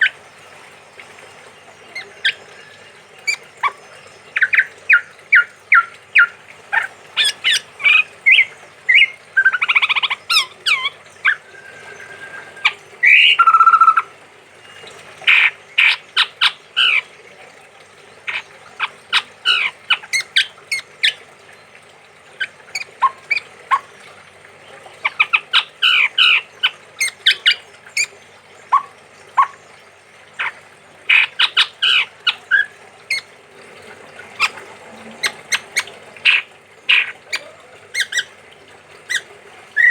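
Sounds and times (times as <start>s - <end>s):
bird calling sharp notes: 1.8s - 17.1s, 30.3s - 33.3s, 34.2s - 38.4s, 39.0s - 39.9s.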